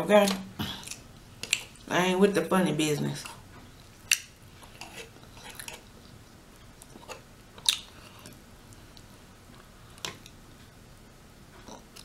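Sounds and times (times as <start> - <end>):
quiet chewing: 3.2 - 10.7.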